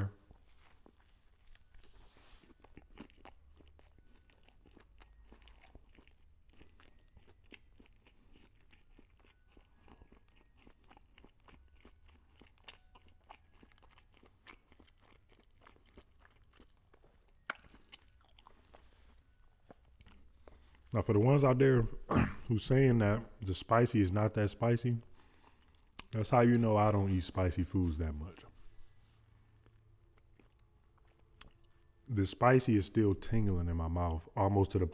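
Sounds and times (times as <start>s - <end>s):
chewing crispy food: 0.1s - 21.7s, 22.9s - 34.9s
wet mouth clicks: 17.5s - 18.0s, 25.8s - 26.2s.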